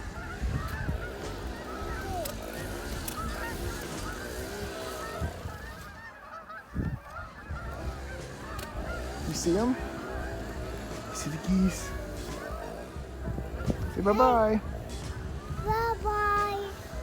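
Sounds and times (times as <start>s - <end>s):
flock of geese honking: 0.0s - 17.0s
dull low thumps: 11.8s - 16.2s.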